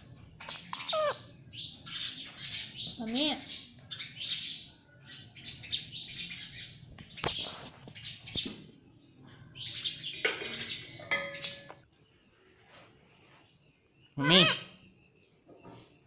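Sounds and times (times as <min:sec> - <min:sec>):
parrot chattering with high chirps: 0:00.4 - 0:01.4.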